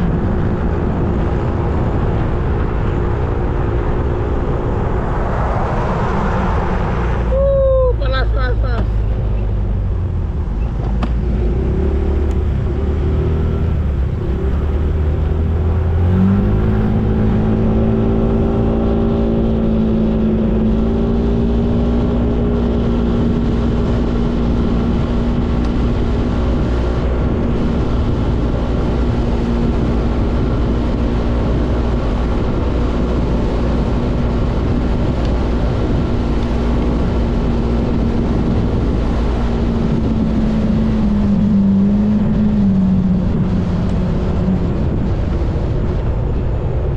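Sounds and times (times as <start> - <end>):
wind rumble on microphone: 0.0 - 46.9.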